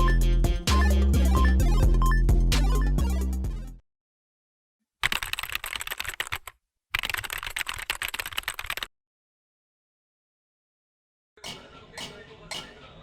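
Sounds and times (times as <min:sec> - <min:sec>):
keyboard typing clicks: 0:05.0 - 0:08.9.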